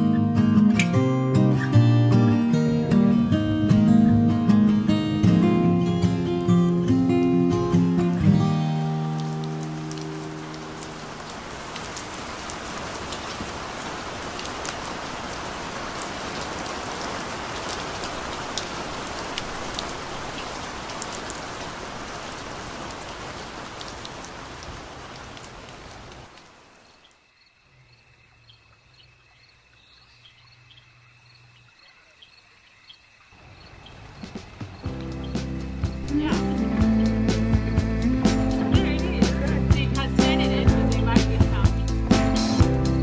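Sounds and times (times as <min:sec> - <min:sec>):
steady rain falling: 0:05.6 - 0:43.0
raindrops ticking on surface: 0:07.7 - 0:27.3, 0:28.1 - 0:36.7
faint chirps: 0:26.8 - 0:34.4.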